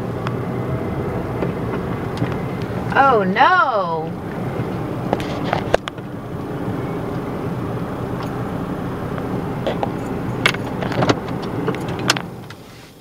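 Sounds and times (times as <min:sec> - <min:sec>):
motor vehicle rumble: 0:00.0 - 0:13.0.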